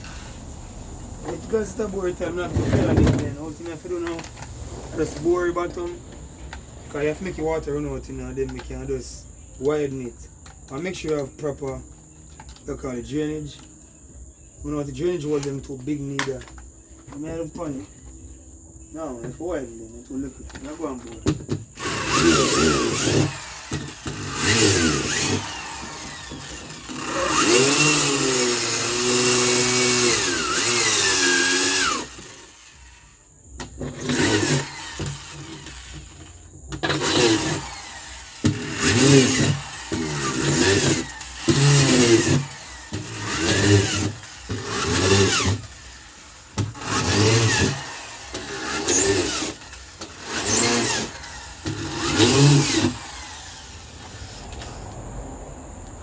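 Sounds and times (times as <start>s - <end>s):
power drill boring: 0.0s - 5.9s, 21.8s - 54.8s.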